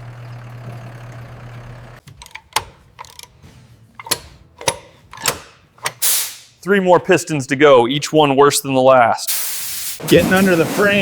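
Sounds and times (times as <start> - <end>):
metallic clicks and knocks: 2.0 - 3.4, 4.0 - 6.0.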